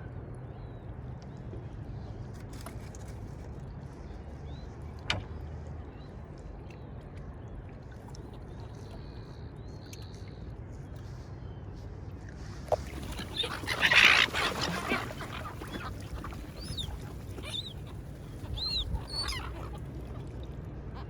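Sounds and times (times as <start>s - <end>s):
low background rumble: 0.0s - 21.0s
gulls squawking: 12.9s - 19.9s.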